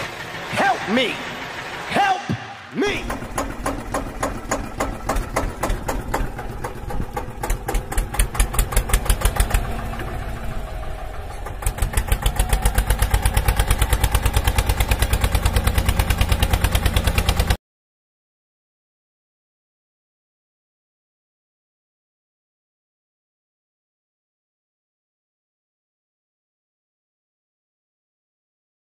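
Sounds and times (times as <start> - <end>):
tractor engine chugging: 0.0 - 17.6.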